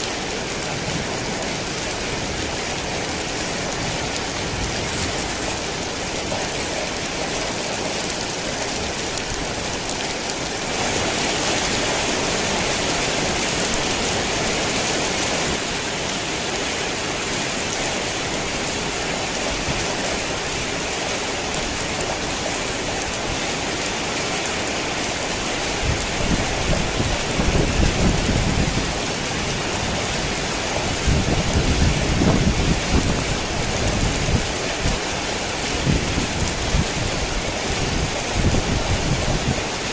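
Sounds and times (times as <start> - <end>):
heavy rain falling: 0.0 - 39.9
low thunder rumbles: 25.8 - 35.0.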